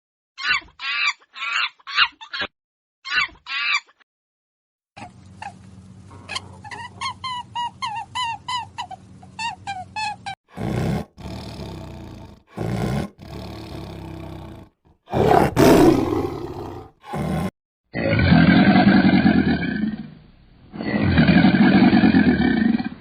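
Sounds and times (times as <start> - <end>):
deep calls of large animal: 10.5 - 23.0.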